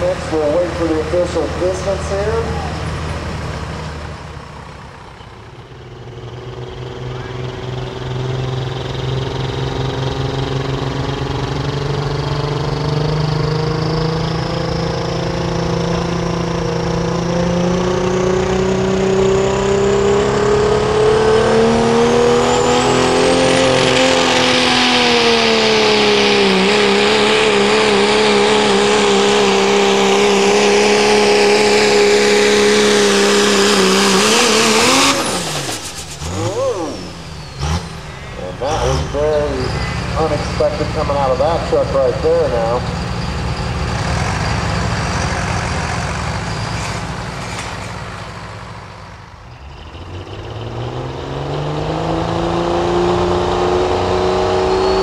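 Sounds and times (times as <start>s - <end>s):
diesel truck engine at full throttle: 0.0s - 55.0s
high turbo whistle: 34.1s - 47.2s, 53.7s - 55.0s.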